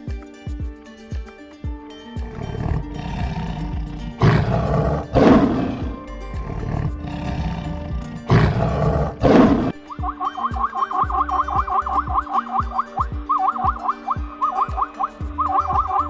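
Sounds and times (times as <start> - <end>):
background music: 0.0 - 16.0
lion roaring: 2.3 - 9.8.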